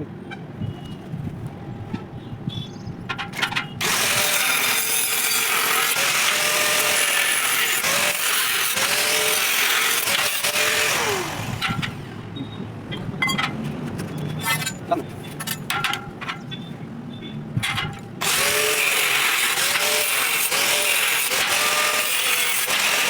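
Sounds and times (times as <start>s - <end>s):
angle grinder grinding steel: 3.8s - 12.0s, 14.4s - 15.6s, 18.2s - 23.0s.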